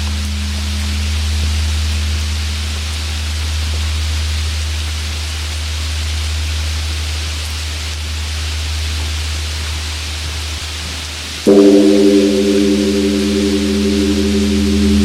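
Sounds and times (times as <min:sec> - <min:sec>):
steady rain: 0:00.0 - 0:15.0
temple bell humming: 0:11.5 - 0:15.0.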